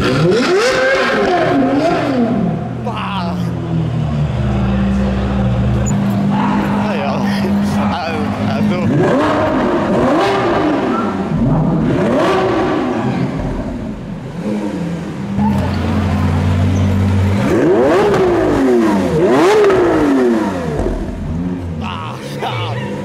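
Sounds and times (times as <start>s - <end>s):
car engine revving: 0.0s - 23.0s
car engine idling: 1.2s - 23.0s.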